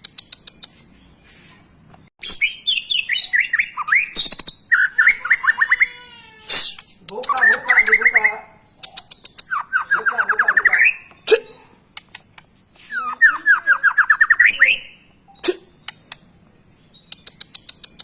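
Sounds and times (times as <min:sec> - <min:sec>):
sharp clicks and high ticks: 0:00.0 - 0:00.7, 0:06.8 - 0:07.7, 0:08.8 - 0:09.5, 0:11.9 - 0:12.5, 0:15.8 - 0:16.3, 0:17.1 - 0:18.0
bird singing: 0:00.0 - 0:06.1, 0:06.8 - 0:11.3, 0:12.0 - 0:18.0.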